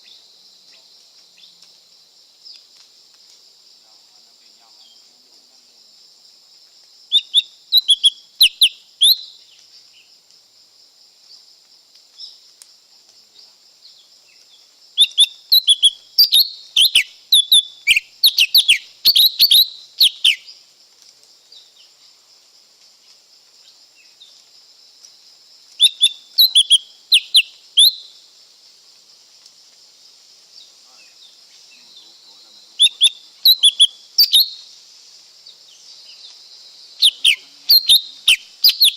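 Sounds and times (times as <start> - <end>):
steady high-pitched hiss: 0.0 - 38.9
bird whistling song: 7.1 - 9.4, 15.0 - 20.5, 25.8 - 28.1, 32.8 - 34.6, 37.0 - 38.9.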